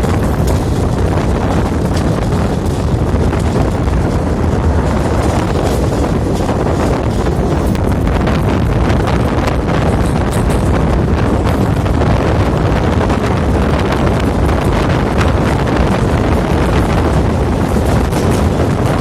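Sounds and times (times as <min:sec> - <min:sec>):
moving train rumble: 0:00.0 - 0:19.0
wind buffeting microphone: 0:00.0 - 0:19.0.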